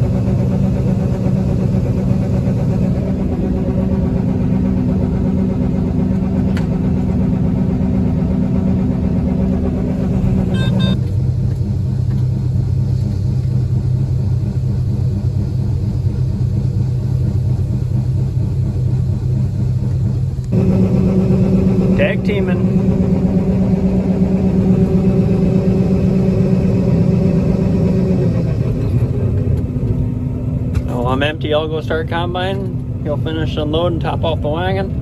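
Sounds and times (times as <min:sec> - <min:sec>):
combine harvester engine drone: 0:00.0 - 0:35.0
deep steady hum: 0:00.0 - 0:35.0
electronic beeping: 0:10.5 - 0:11.0.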